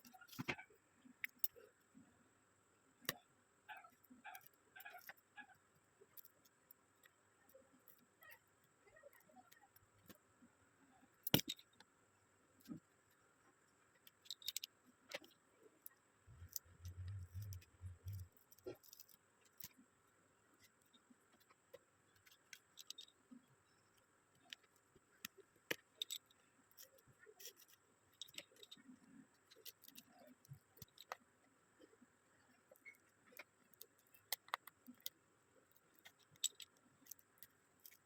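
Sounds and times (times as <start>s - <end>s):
small clicks and taps of tools: 3.0s - 3.3s, 11.2s - 11.9s, 12.6s - 19.8s, 20.6s - 38.0s.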